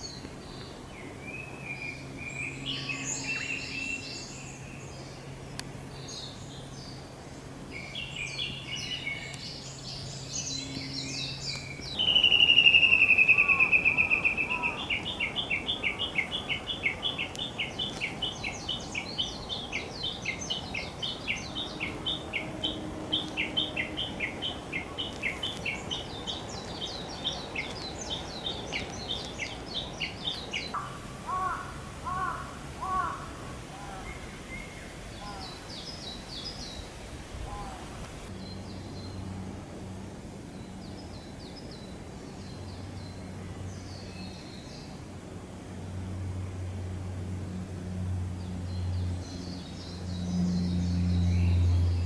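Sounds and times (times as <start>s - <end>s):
lower arching bird calls: 7.7s - 39.1s.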